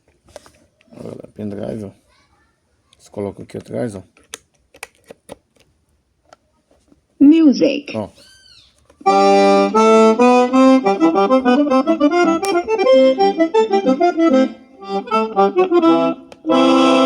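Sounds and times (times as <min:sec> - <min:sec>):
accordion music from speaker: 0:09.0 - 0:17.0.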